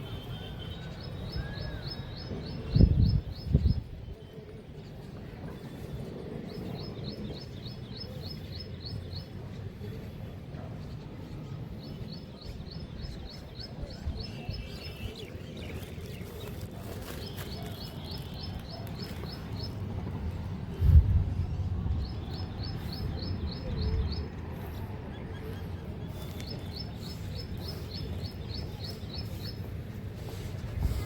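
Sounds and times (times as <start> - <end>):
low outdoor rumble: 18.2 - 31.0.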